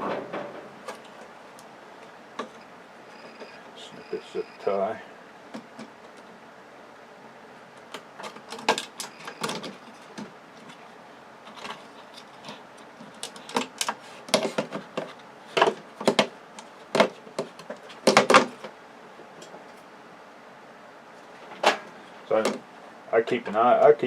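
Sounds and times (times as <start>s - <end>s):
plastic and metal parts rattling: 11.5s - 18.7s.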